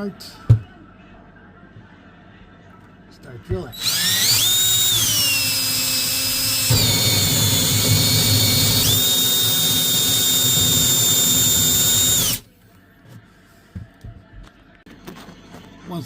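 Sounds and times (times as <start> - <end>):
drill bit grinding through wood: 3.8 - 12.4
electric drill motor whining: 3.8 - 12.4.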